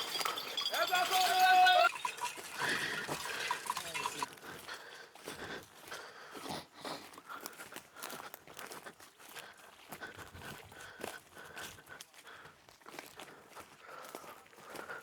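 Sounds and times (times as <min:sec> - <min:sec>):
faint metallic clinks: 0:00.0 - 0:05.1.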